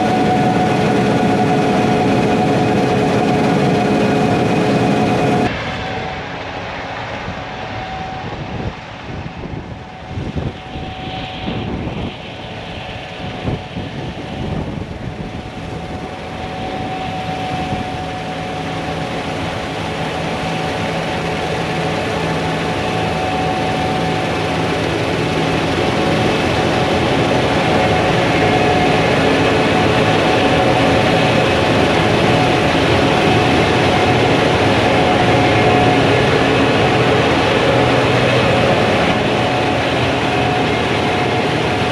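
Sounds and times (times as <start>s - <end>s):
harvester diesel engine running: 0.0s - 5.5s, 15.6s - 41.9s
steady mechanical whine: 0.0s - 41.9s.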